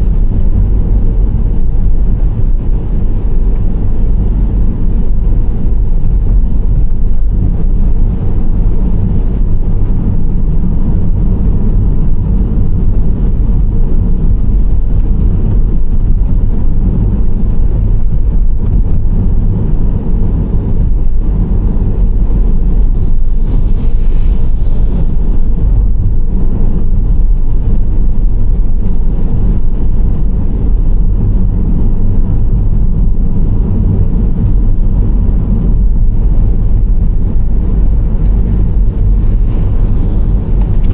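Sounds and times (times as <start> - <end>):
road and engine rumble: 0.0 - 40.9.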